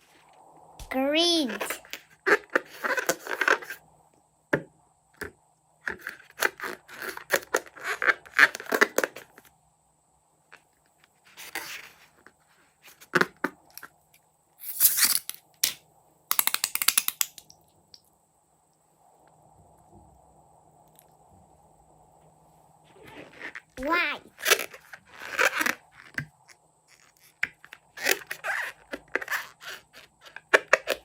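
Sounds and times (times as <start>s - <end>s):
quick clicks: 14.6s - 17.6s.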